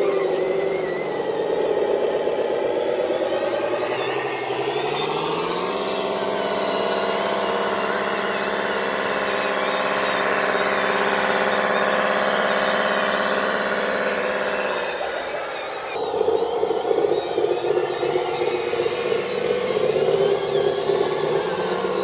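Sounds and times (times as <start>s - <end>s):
model truck engine drone: 0.0s - 22.0s.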